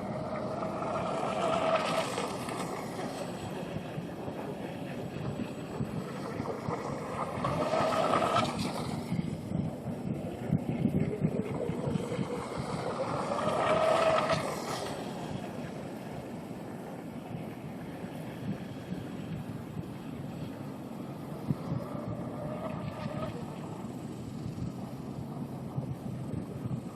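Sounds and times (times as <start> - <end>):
model boat motor whine passing: 0.0 - 26.9
wind on microphone: 0.0 - 26.9.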